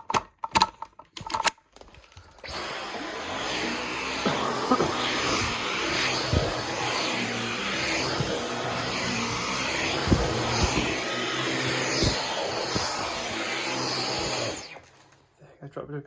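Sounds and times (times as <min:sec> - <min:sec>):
stick vacuum running: 0:02.4 - 0:15.2.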